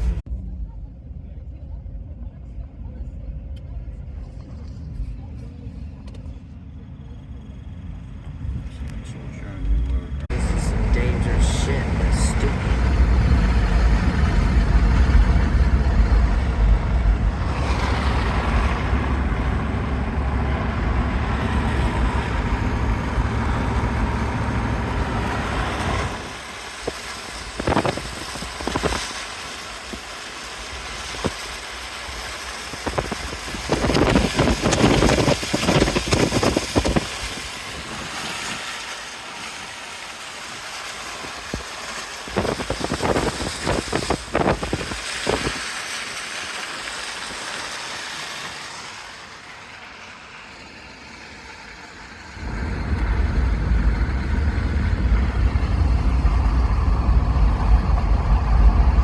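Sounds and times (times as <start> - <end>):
low vehicle rumble: 0.0 - 59.0
wind buffeting microphone: 12.8 - 29.1, 32.6 - 38.3, 41.2 - 45.7.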